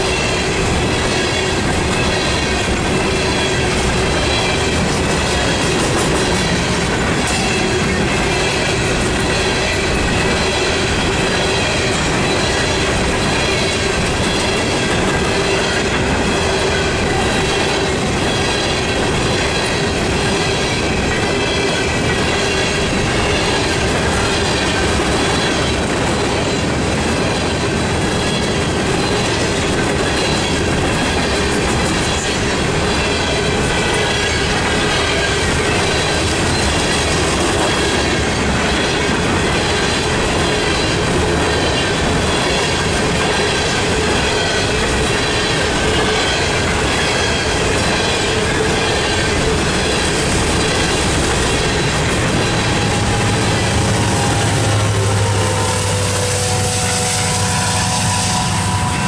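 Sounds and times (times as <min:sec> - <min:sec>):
freight train wheels rumbling: 0:00.0 - 0:59.0
high-pitched wheel squeal: 0:50.6 - 0:59.0.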